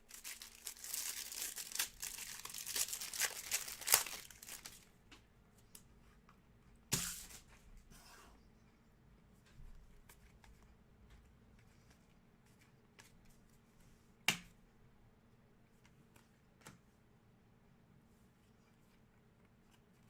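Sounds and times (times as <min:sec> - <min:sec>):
cards rustling: 0:00.1 - 0:04.8.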